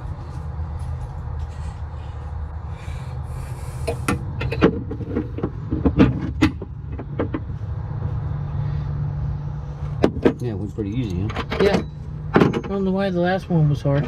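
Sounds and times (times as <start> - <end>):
steady low hum: 0.0 - 14.0
metallic clanks of hand tools: 10.0 - 12.9.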